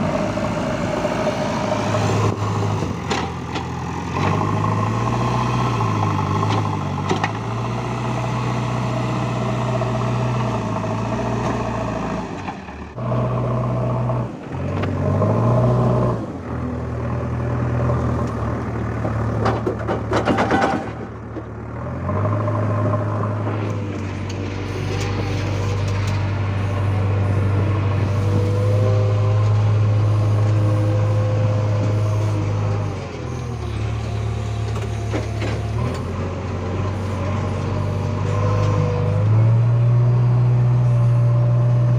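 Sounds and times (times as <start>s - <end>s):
backhoe diesel engine working: 0.0s - 41.9s.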